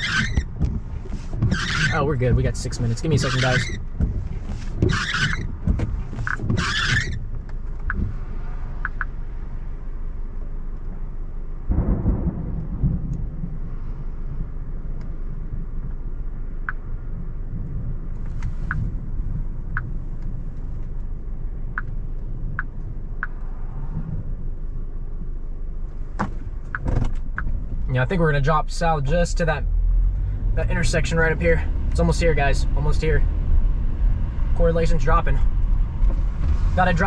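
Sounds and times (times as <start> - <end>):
noisy rustles: 0.0 - 37.0
light ticks: 8.8 - 9.2
thunder rumbling: 11.6 - 18.2.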